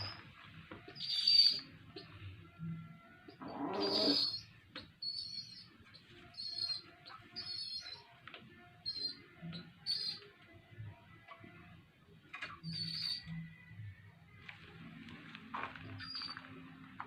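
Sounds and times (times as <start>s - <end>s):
pigeon squabs squeaking: 0.0s - 2.2s, 3.2s - 8.2s, 8.8s - 10.4s, 12.3s - 13.5s, 15.8s - 16.6s.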